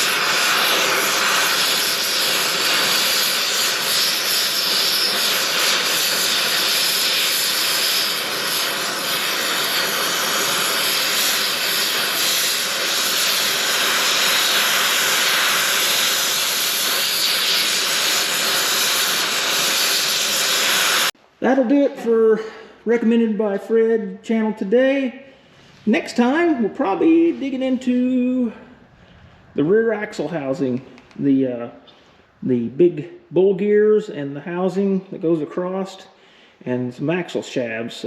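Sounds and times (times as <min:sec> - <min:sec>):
loud rushing hiss: 0:00.0 - 0:21.2.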